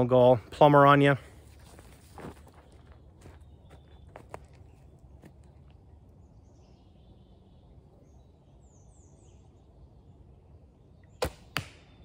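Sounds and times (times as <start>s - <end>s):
bird chirping: 2.2s - 11.3s.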